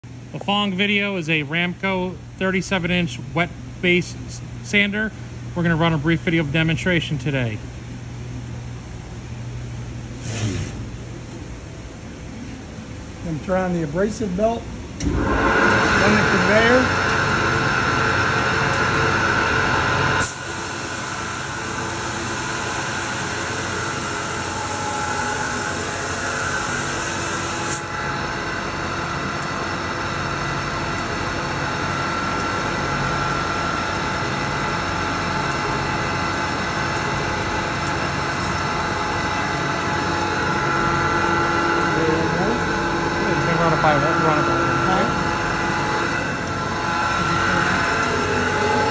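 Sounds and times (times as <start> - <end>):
belt sander machine hum: 13.5 - 48.9.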